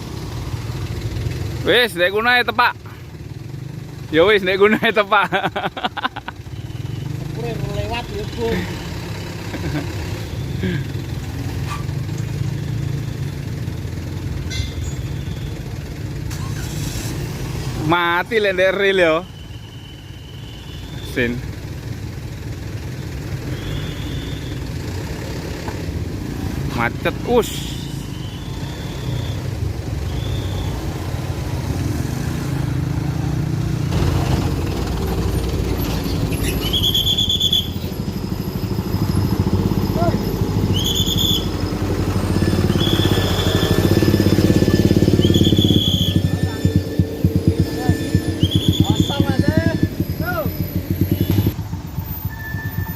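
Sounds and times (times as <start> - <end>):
diesel engine idling: 0.0 - 31.8, 32.5 - 52.9
high squeals: 14.4 - 17.2, 18.1 - 21.2, 23.4 - 24.8, 27.3 - 31.4, 34.8 - 52.9.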